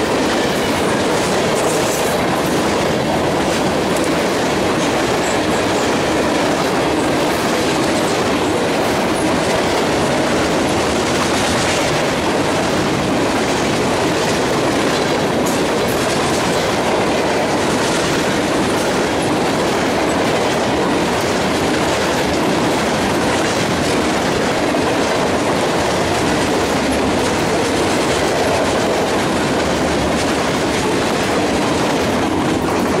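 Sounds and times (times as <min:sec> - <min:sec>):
freight cars rumbling on rails: 0:00.0 - 0:33.0.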